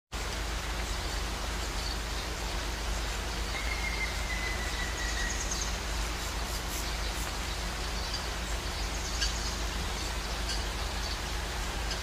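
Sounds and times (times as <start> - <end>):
outdoor ambience hiss: 0.1 - 12.0
high bird chirps: 3.3 - 11.3
whistled bird note: 3.5 - 5.7.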